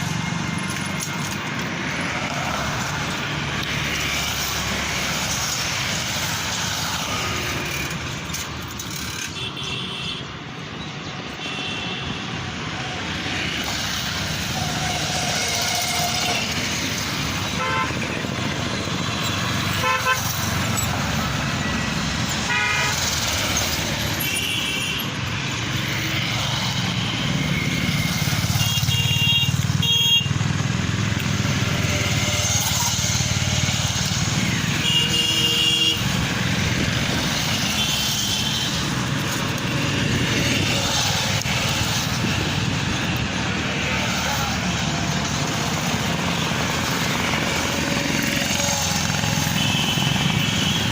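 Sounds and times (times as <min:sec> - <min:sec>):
road traffic rumble: 0:00.0 - 0:50.9
vehicle horn honks: 0:17.6 - 0:17.9, 0:19.8 - 0:20.2, 0:22.5 - 0:23.0, 0:28.6 - 0:30.3, 0:34.8 - 0:36.0.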